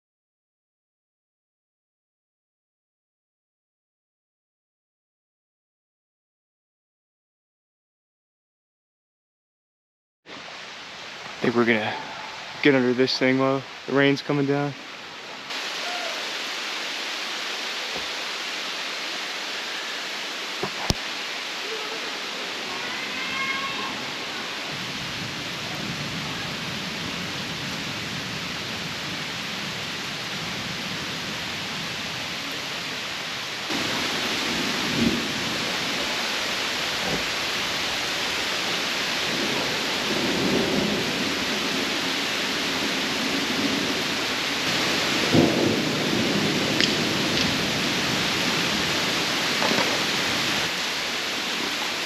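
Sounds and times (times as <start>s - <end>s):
rain falling: 10.3s - 52.0s
thunder rumbling: 22.6s - 32.8s, 33.5s - 52.0s.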